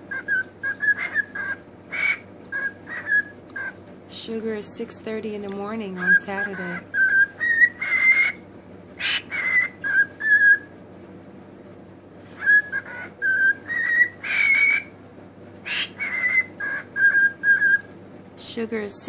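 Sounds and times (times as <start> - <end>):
pet bird whistling and calling: 0.0 - 3.8, 6.0 - 8.4, 9.0 - 10.7, 12.3 - 15.0, 15.6 - 17.9
harsh bird screeching: 0.1 - 3.8, 6.0 - 8.4, 9.0 - 10.7, 12.3 - 15.0, 15.6 - 17.9.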